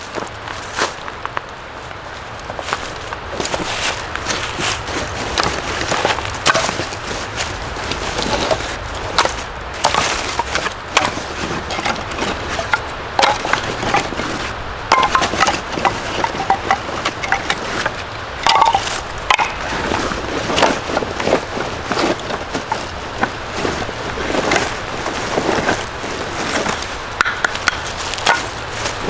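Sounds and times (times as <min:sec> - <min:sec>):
hard objects clicking and clinking: 0:07.9 - 0:25.8.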